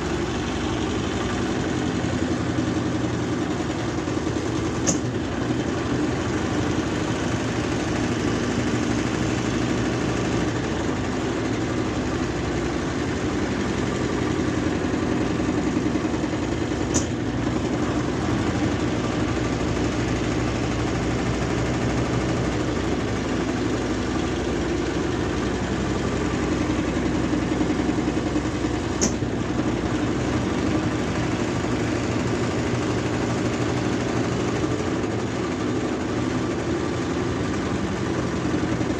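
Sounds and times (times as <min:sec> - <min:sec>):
washing machine spinning: 0:00.0 - 0:38.9
sharp click: 0:04.8 - 0:05.2, 0:16.9 - 0:17.2, 0:29.0 - 0:29.3.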